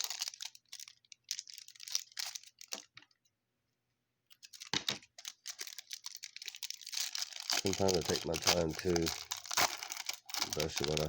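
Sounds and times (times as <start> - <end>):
foil wrapper tearing and crinkling: 0.0 - 3.0, 4.4 - 11.0
handling rustle: 4.3 - 11.0.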